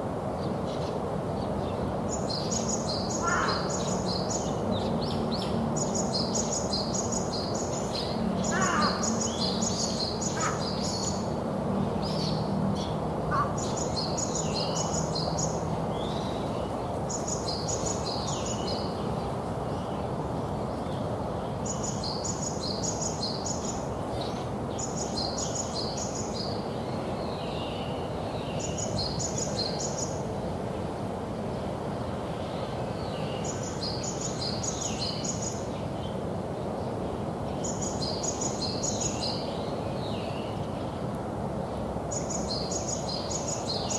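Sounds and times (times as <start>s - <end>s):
songbird singing: 0.4s - 43.9s
soft bird calls: 0.7s - 11.3s.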